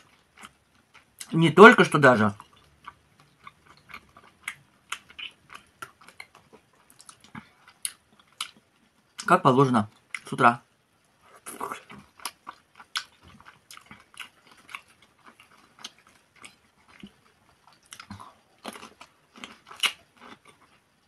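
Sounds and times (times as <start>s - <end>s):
wet chewing with lip smacks: 2.4s - 9.3s, 11.7s - 20.8s
crunchy bite into pickle: 17.8s - 20.5s.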